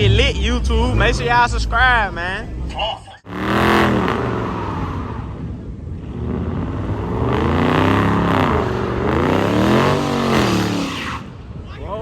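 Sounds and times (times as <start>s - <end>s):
car engine revving hard: 3.3s - 11.2s.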